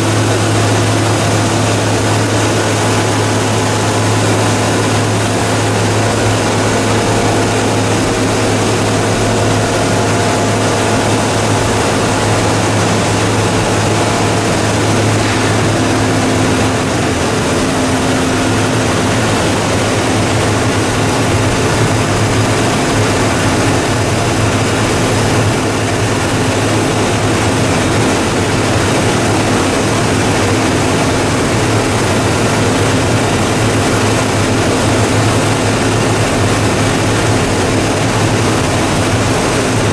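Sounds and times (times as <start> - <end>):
recycling machine humming: 0.0 - 39.9.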